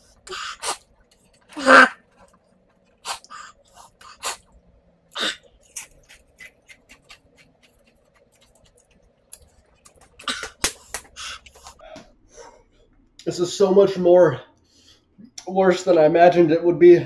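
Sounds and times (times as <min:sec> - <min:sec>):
tortilla chips crunching: 0:05.4 - 0:11.8.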